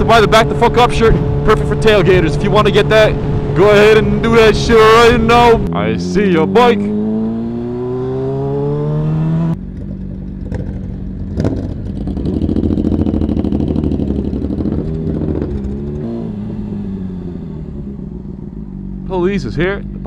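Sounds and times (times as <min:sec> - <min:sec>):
engine accelerating: 0:00.0 - 0:20.0
rough pulsing engine rumble: 0:00.0 - 0:20.0.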